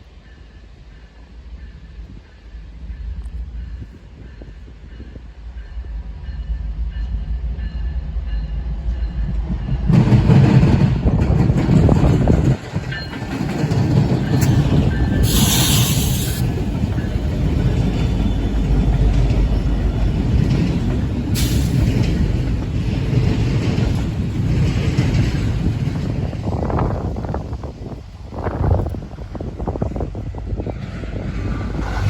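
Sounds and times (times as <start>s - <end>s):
train wheels rumbling on rail: 0.0s - 32.0s
brief bursts of hiss: 15.2s - 16.5s.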